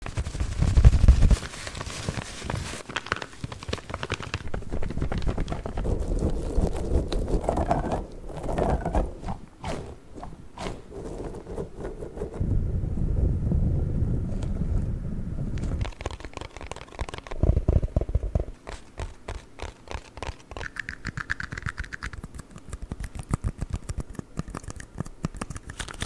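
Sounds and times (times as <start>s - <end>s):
crinkling: 0.0s - 12.4s, 15.6s - 20.8s
scratching: 0.0s - 12.4s, 15.6s - 26.0s
low rumble: 12.3s - 15.8s
rapid tapping: 15.8s - 25.8s.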